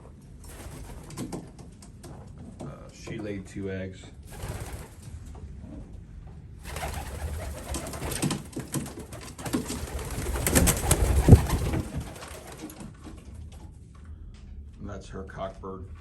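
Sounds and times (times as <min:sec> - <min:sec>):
pigeons cooing: 0:06.7 - 0:12.7.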